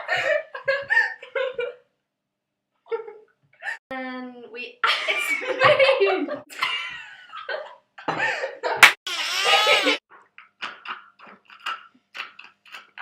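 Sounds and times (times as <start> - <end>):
young people laughing: 4.9 - 10.0.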